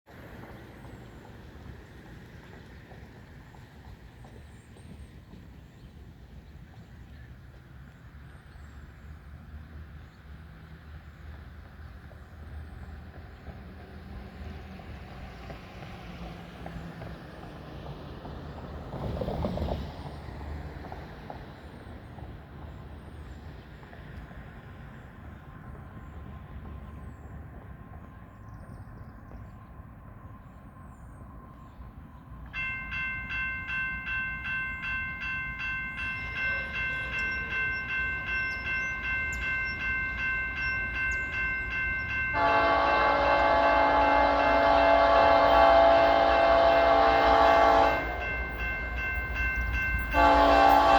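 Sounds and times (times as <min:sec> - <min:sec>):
train rumbling: 0:00.1 - 0:50.9
railroad crossing bell ringing: 0:31.4 - 0:50.9.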